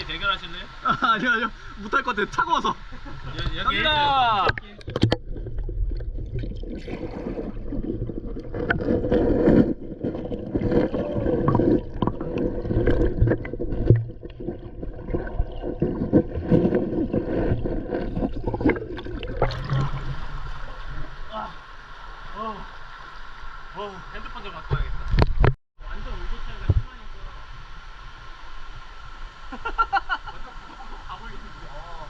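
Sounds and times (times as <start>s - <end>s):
muffled water sloshing and bubbling: 4.4s - 24.1s.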